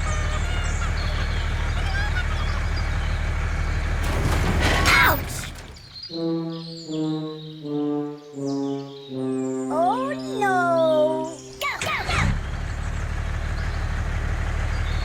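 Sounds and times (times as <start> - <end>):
low engine running: 0.0 - 6.1, 11.4 - 15.0
birds chirping: 0.0 - 15.0
brass-like held notes: 6.1 - 11.6.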